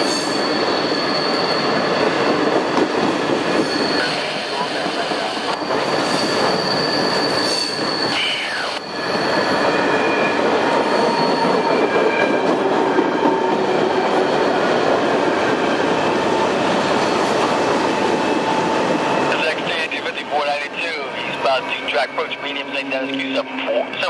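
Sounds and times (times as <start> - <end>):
high wheel squeal: 0.0 - 2.5, 3.4 - 12.6
steel wheels rumbling on rail: 0.0 - 24.0.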